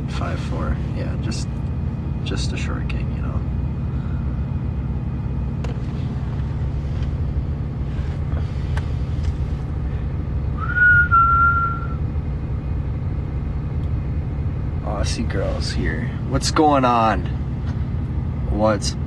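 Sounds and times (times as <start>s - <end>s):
truck idling: 0.0s - 19.0s
high whistle-like note: 10.6s - 12.0s.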